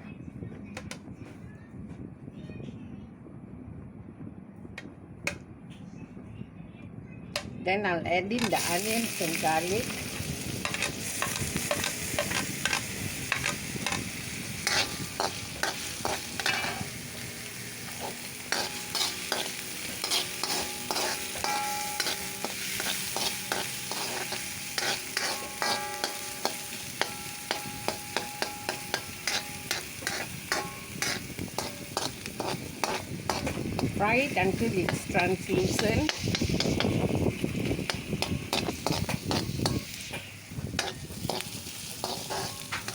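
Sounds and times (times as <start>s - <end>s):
onion and garlic sizzling in oil: 8.2s - 42.9s
utensil scraping pan: 8.4s - 17.0s, 17.8s - 37.0s, 37.9s - 42.9s.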